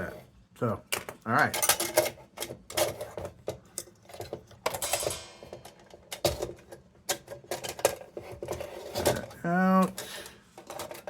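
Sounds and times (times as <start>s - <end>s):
metal lantern parts clanking: 1.4s - 3.0s, 4.7s - 8.0s.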